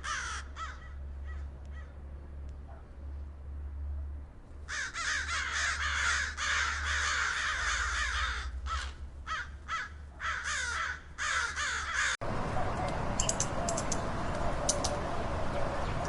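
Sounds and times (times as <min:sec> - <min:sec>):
flock of birds calling: 0:04.7 - 0:16.0.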